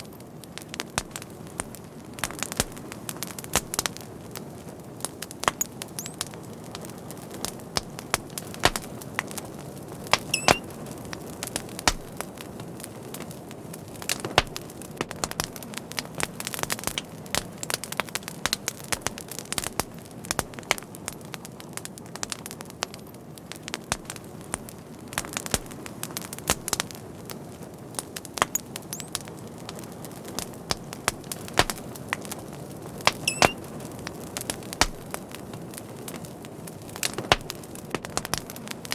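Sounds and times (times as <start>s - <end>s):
fire crackling: 0.0s - 38.9s
sharp pops and snaps: 5.4s - 6.3s, 7.4s - 9.4s, 10.1s - 10.7s, 11.5s - 12.2s, 14.1s - 16.1s, 28.3s - 29.3s, 30.3s - 32.4s, 33.0s - 33.7s, 34.4s - 35.2s, 37.0s - 38.9s.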